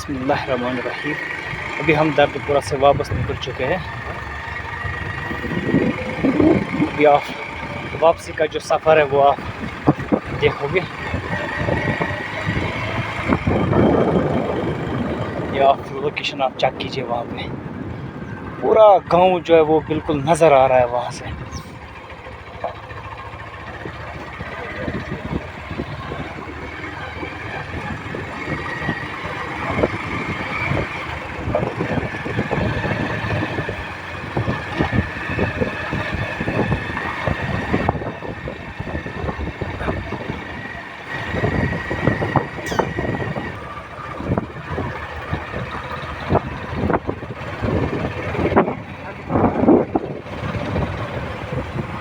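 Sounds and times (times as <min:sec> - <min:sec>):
motorcycle engine whine: 0:00.0 - 0:52.0.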